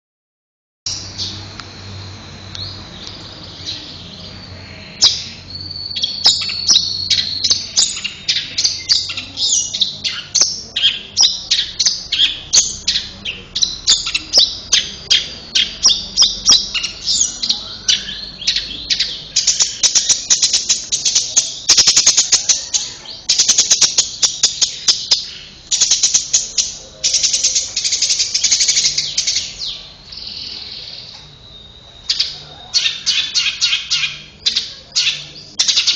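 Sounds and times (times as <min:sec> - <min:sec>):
bird singing chirps and trills: 0:00.9 - 0:35.9.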